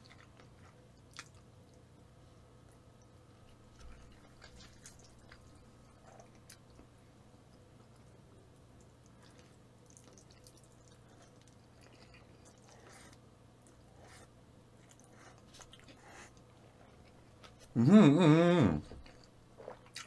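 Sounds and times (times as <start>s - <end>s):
man chewing noodles: 0.0s - 1.9s, 2.6s - 17.8s, 18.8s - 20.0s
man's wordless vocal sound: 17.7s - 19.0s.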